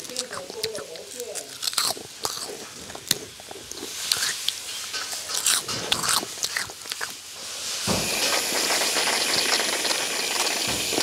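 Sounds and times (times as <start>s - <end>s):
crunching prawn crackers: 0.0s - 7.3s.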